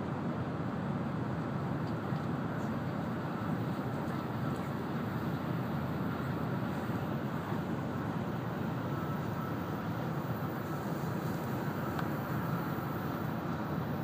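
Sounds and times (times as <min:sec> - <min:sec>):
train cabin rush and rumble: 0:00.0 - 0:14.0
faint thin whine: 0:00.1 - 0:14.0.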